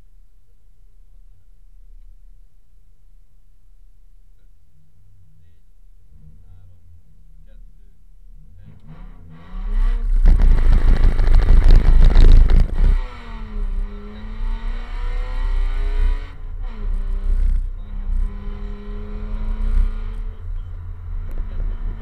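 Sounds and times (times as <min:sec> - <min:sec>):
rally car engine accelerating: 0:06.0 - 0:22.0.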